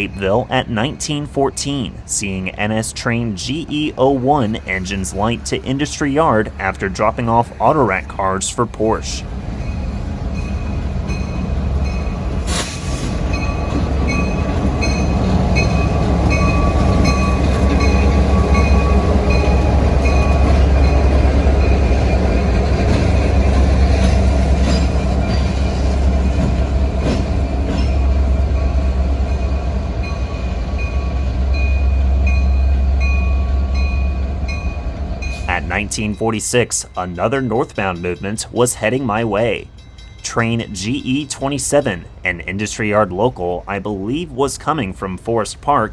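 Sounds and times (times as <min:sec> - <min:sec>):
diesel locomotive engine rumble: 0:00.0 - 0:45.9
steady ringing bell: 0:13.3 - 0:26.1, 0:27.1 - 0:42.2.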